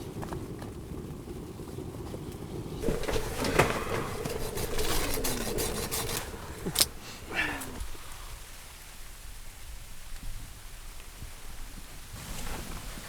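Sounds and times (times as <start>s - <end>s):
firewood knocking and scraping: 2.8s - 8.2s.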